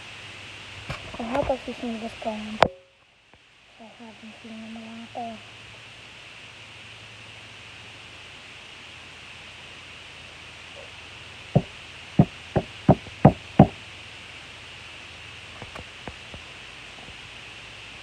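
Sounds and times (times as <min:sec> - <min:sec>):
faint steady hiss: 0:00.0 - 0:18.0
sharp taps on hard object: 0:11.6 - 0:13.7.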